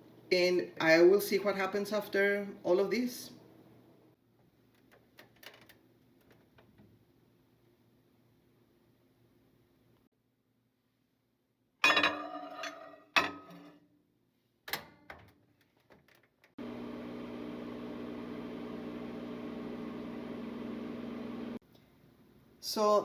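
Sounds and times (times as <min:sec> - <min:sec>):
microwave oven humming: 0:16.6 - 0:21.6.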